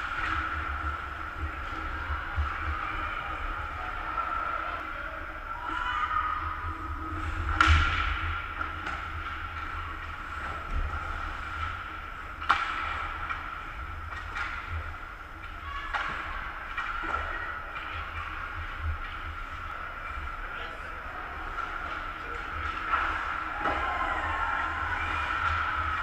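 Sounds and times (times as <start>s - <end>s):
hockey sticks and puck knocking: 12.4s - 19.2s.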